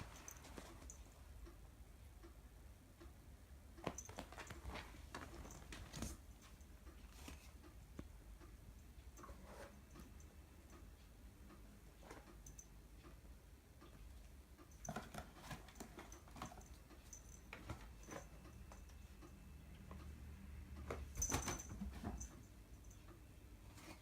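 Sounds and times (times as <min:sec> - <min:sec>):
cat paws tapping on floor: 0:03.8 - 0:08.2.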